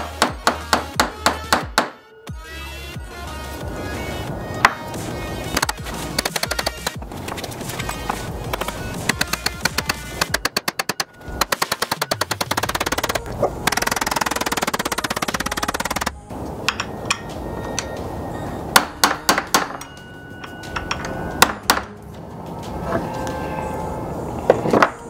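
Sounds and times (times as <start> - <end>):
background music: 0.0 - 25.0
tools and parts knocking: 5.6 - 16.1, 16.7 - 17.9
ratchet wrench clicking: 5.6 - 16.2.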